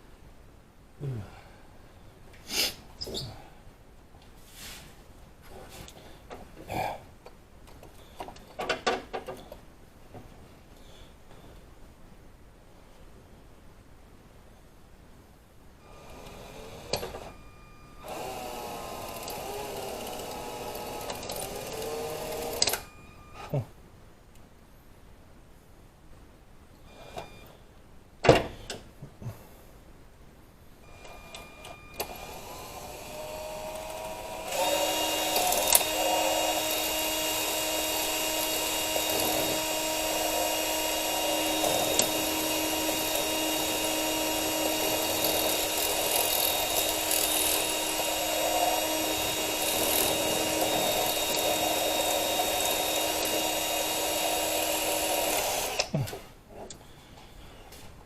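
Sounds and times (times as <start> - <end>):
electric drill running: 18.0 - 22.9, 31.0 - 55.9.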